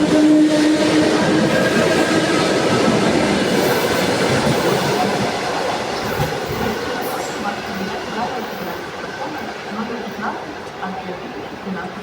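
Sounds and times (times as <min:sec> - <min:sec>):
train wheels on tracks: 0:00.0 - 0:12.0.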